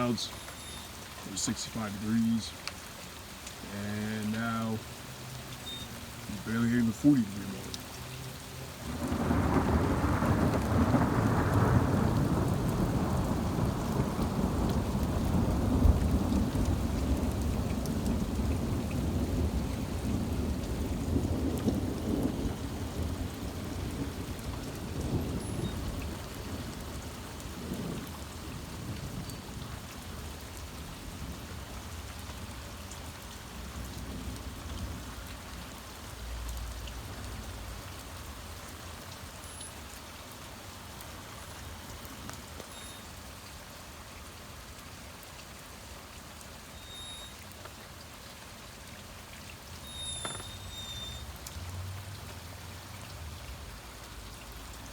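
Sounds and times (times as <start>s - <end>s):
heavy rain: 0.0s - 54.9s
thunder rumbling: 8.8s - 31.8s.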